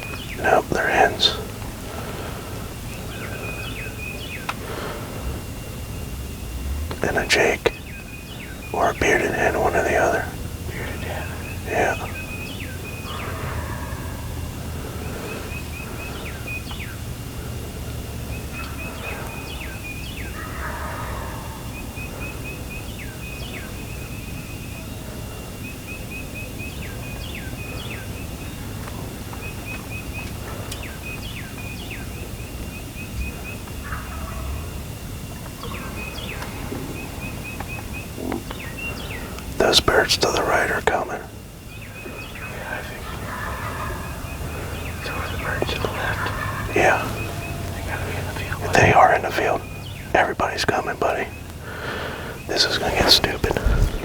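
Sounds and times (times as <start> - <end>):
low steady rumble: 1.4 - 8.8
turkey gobbles: 8.7 - 16.4, 20.3 - 21.7, 33.2 - 34.8, 42.0 - 49.7, 50.3 - 54.0
turkey hen yelps: 20.4 - 21.6, 43.0 - 44.3.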